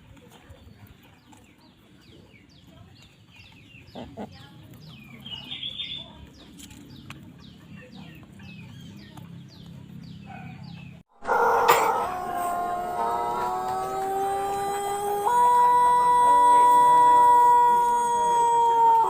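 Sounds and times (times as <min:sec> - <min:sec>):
rooster crowing: 0:11.1 - 0:19.0.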